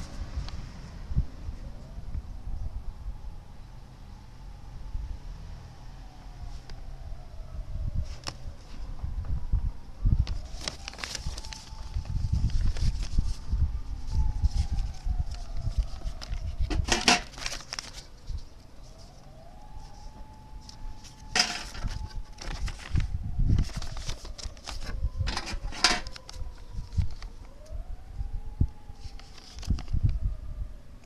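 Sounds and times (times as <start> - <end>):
metal tin clattering and scraping: 16.7 - 17.4, 21.3 - 21.9, 25.3 - 26.1.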